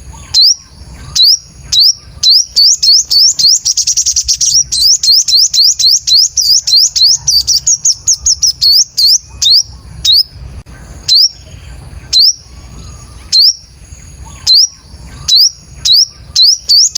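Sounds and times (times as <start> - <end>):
sunbird chirping: 0.0 - 16.9.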